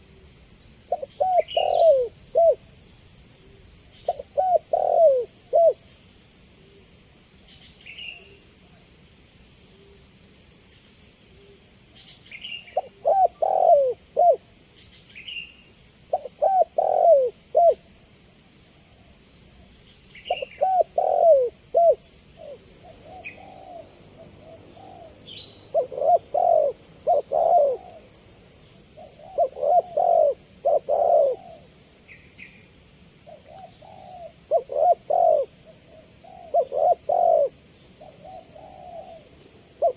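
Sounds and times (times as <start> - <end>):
steady high hiss: 0.0 - 39.9
dove cooing: 0.9 - 2.7, 4.1 - 5.9, 12.8 - 14.5, 16.1 - 17.8, 20.3 - 28.2, 29.0 - 31.7, 33.3 - 39.9.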